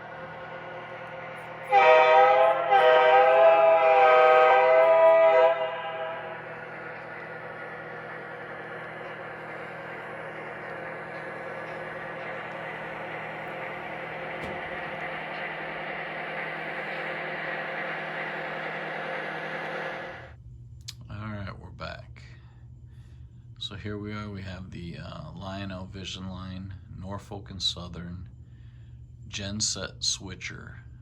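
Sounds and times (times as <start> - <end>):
deeper tone: 0.0 - 17.8
model locomotive engine drone: 0.0 - 20.4.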